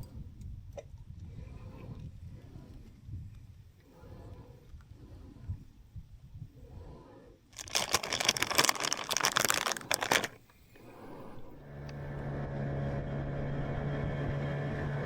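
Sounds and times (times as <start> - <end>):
loud rustling handling noise: 7.6 - 10.5
boat motor humming: 10.8 - 15.0.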